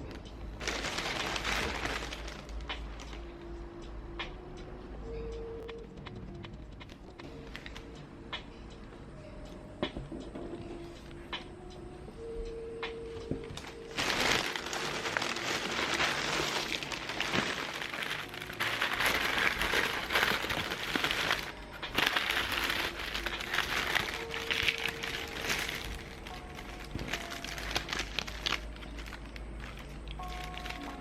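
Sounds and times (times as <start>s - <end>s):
crinkling rustling: 0.0s - 3.2s, 13.3s - 31.0s
soft background music: 0.0s - 31.0s.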